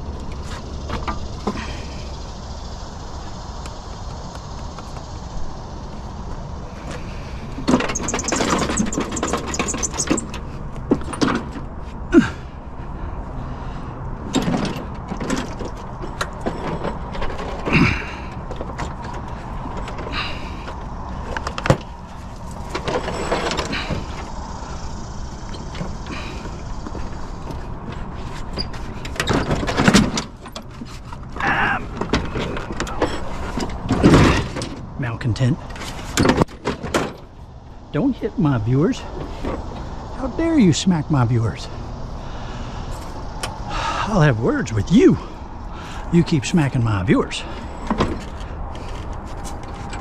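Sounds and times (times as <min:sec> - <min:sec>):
steady low rumble: 0:00.0 - 0:07.7, 0:10.2 - 0:50.0
scrap metal clanking: 0:14.3 - 0:24.4, 0:25.5 - 0:34.8.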